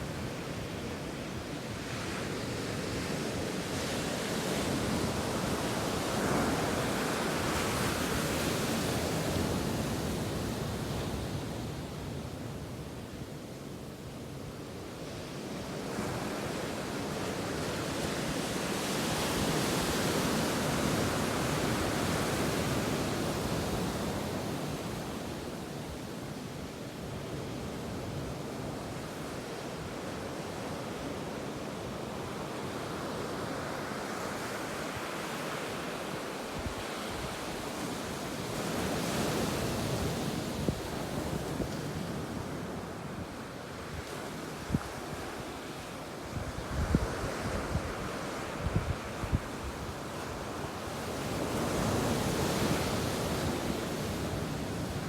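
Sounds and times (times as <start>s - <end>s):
ocean waves breaking on beach: 0.0s - 13.2s, 14.4s - 55.0s
wind on microphone: 46.3s - 55.0s.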